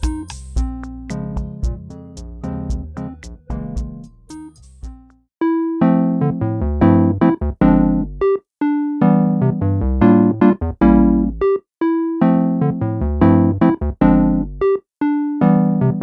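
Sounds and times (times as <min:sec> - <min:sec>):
bass notes: 0:00.0 - 0:05.2, 0:05.8 - 0:08.4, 0:09.0 - 0:11.6, 0:12.2 - 0:14.8, 0:15.4 - 0:16.0
electric piano tune: 0:05.4 - 0:16.0.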